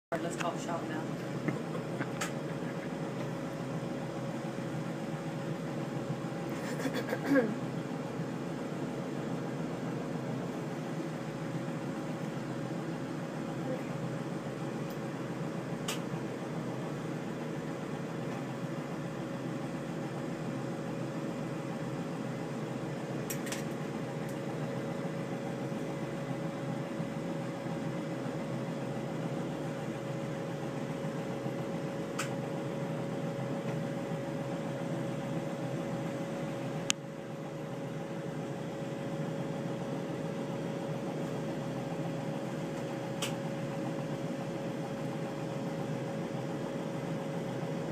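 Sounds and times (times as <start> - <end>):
workshop equipment hiss and hum: 0.1 - 47.9
sharp click: 32.2 - 32.4, 43.2 - 43.4.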